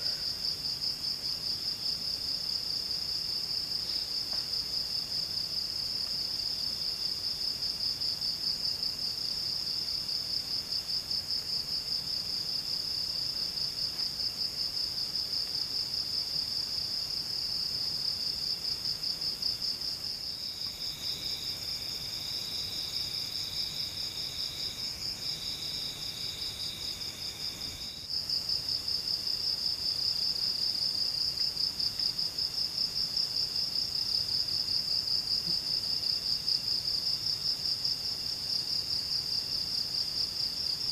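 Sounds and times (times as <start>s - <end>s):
lower insect trill: 0.0s - 40.9s.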